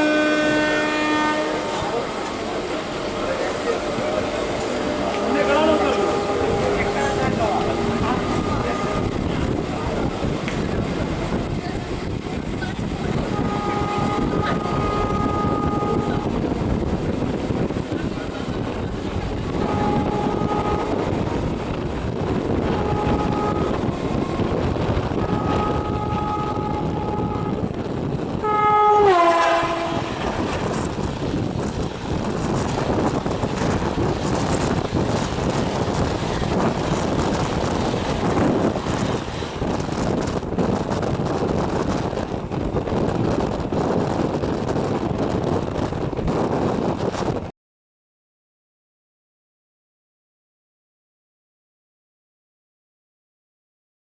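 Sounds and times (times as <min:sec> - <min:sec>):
locomotive horn blasts: 0:00.0 - 0:09.7, 0:13.2 - 0:16.9, 0:19.4 - 0:31.6
train rumble and wheel clatter: 0:00.0 - 0:47.5.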